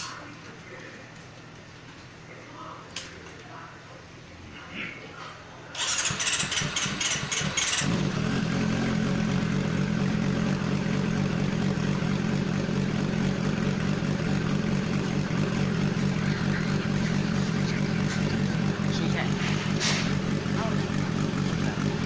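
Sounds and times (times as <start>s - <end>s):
motorcycle starter cranking: 5.7s - 8.5s
motorcycle engine idling: 5.8s - 22.0s.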